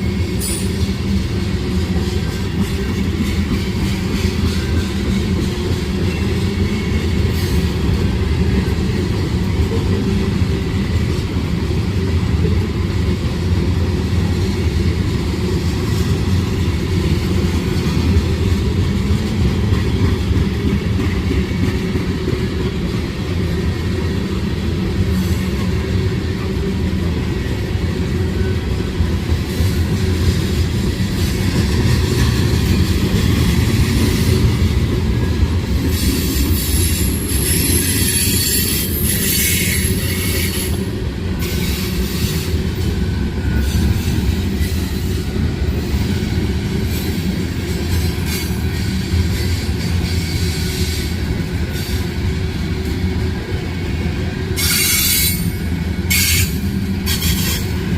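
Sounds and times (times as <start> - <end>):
train wheels rumbling on track: 0.0 - 57.9
high wheel squeal: 35.9 - 40.8, 54.6 - 57.7.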